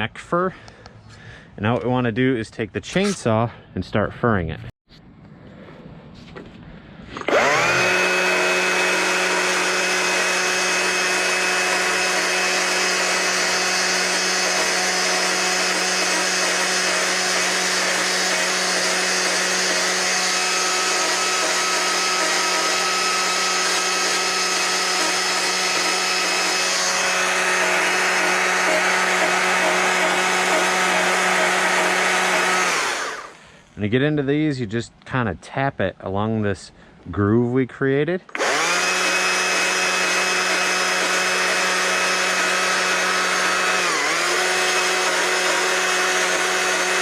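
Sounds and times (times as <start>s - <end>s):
power tool motor whining: 7.2s - 33.4s, 38.3s - 47.0s.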